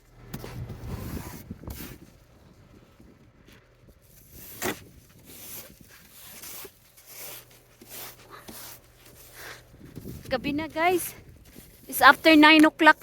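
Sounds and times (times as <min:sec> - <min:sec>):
snow scraped off car: 0:00.4 - 0:02.2, 0:04.0 - 0:10.2.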